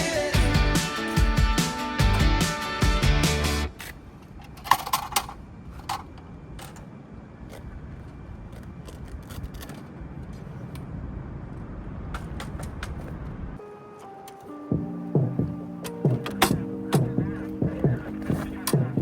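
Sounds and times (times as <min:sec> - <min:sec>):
camping gear clicks and clinks: 0:03.7 - 0:10.5
steady low noise: 0:14.7 - 0:19.0.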